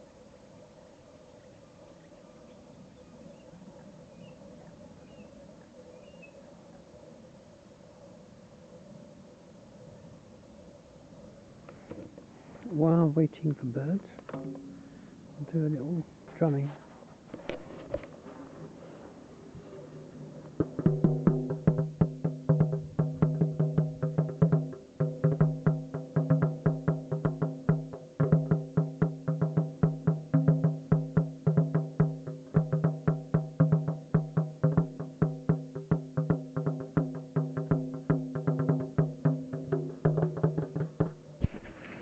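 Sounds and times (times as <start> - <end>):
quick strikes on tuned drum: 14.3 - 14.8, 20.6 - 42.0.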